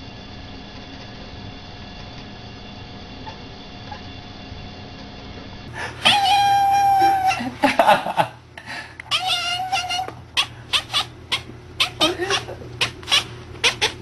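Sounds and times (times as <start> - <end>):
cat yowling: 6.0 - 7.6, 9.1 - 14.0.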